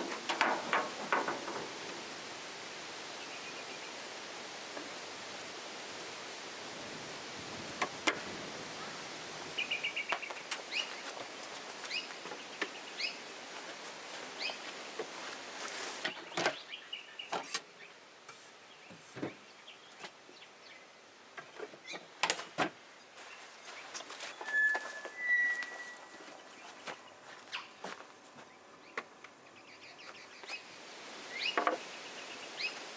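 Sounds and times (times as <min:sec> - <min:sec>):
steady hiss: 0:00.0 - 0:32.9
birds chirping: 0:08.7 - 0:13.6, 0:14.3 - 0:15.1, 0:16.0 - 0:18.0, 0:23.2 - 0:32.9
whistled bird notes: 0:24.3 - 0:26.7.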